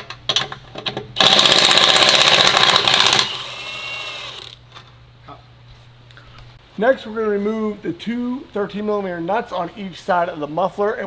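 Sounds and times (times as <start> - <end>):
impact wrench hammering: 1.2 - 4.5.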